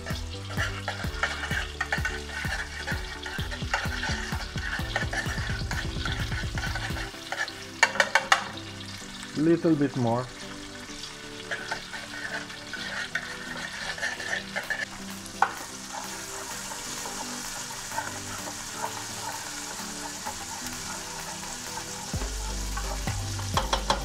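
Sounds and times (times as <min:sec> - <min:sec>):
paste sizzling in oil: 0:00.0 - 0:24.0
spoon scraping a pot: 0:00.1 - 0:08.5, 0:11.4 - 0:24.0
utensil clicking on pot: 0:00.5 - 0:08.6, 0:22.8 - 0:24.0.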